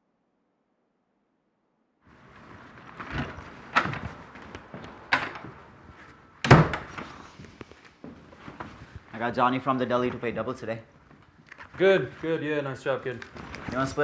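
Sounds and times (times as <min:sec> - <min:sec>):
faint room noise: 0:02.1 - 0:14.0.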